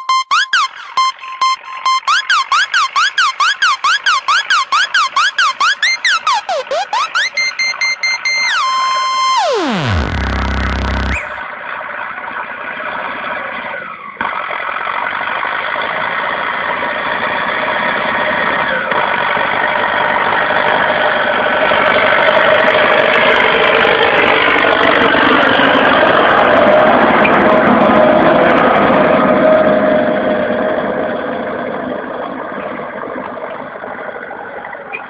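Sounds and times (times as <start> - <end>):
tractor diesel engine running: 9.5 - 28.6.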